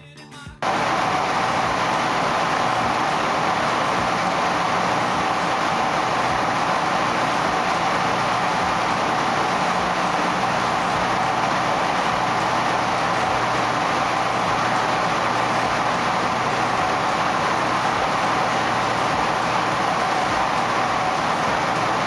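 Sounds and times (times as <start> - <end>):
washing machine whirring: 0.6 - 22.0.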